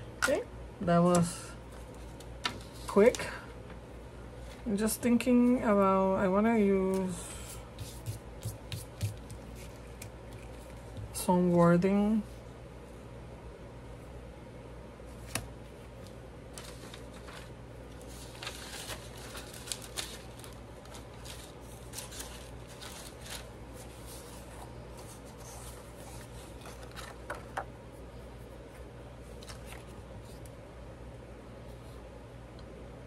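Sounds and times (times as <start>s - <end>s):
steady low hum: 0.0s - 33.0s
paper rustling: 16.0s - 27.7s, 29.3s - 30.5s.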